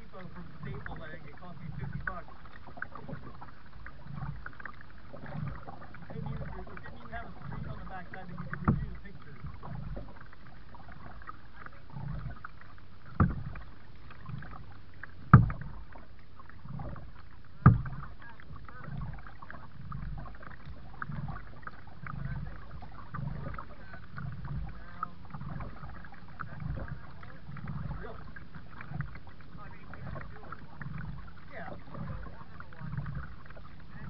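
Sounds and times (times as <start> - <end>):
paddle strokes in water: 0.0 - 34.0
sharp knocks: 15.3 - 15.7.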